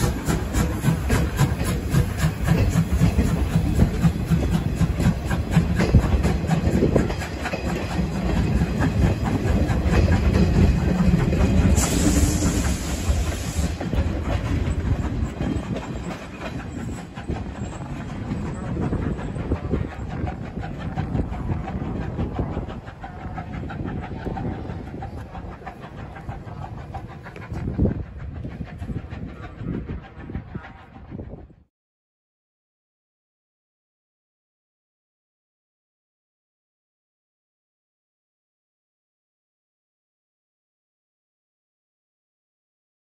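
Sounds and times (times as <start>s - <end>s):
steam hissing: 0.0s - 30.9s
train wheels clicking over rail joints: 0.0s - 31.2s.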